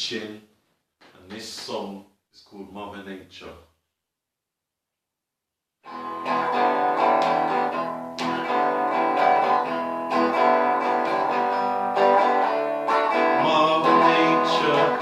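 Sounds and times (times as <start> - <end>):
acoustic guitar strumming chords: 5.8 - 15.0.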